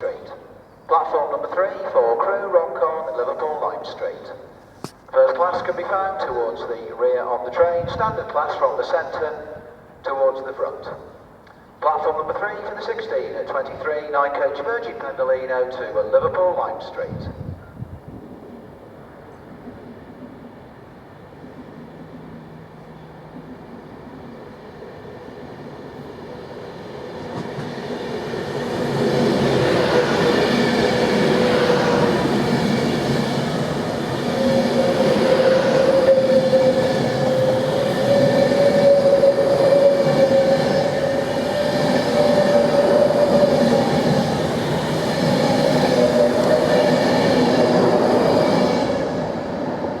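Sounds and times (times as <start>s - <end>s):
electric train whine: 18.4s - 50.0s
train wheels rumbling: 21.6s - 50.0s.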